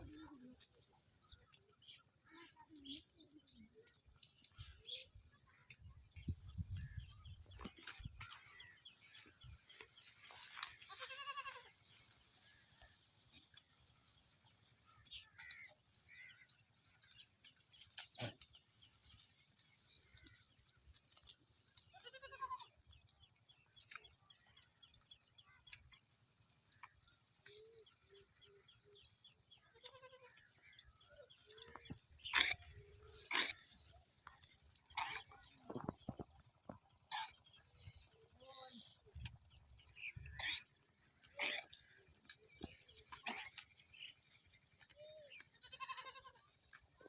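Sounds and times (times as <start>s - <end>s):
goats bleating: 10.7s - 11.8s, 21.9s - 22.7s, 45.3s - 46.7s.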